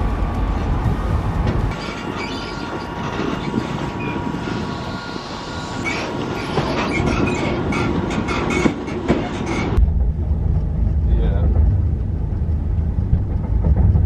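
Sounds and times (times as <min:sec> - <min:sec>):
low steady rumble: 0:00.0 - 0:05.5, 0:09.8 - 0:14.0
train wheels clattering and squealing: 0:00.0 - 0:09.8.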